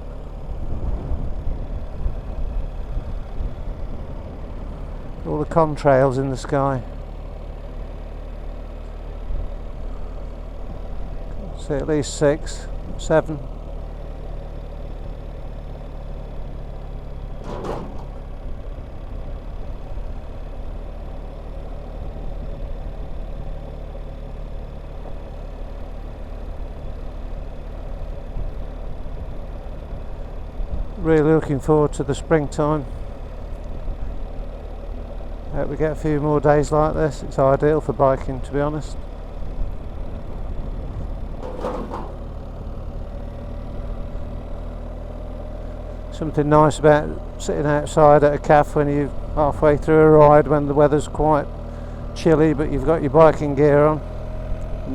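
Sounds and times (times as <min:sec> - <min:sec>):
motorcycle engine running: 0:00.0 - 0:54.9
wind and road noise: 0:00.0 - 0:54.9.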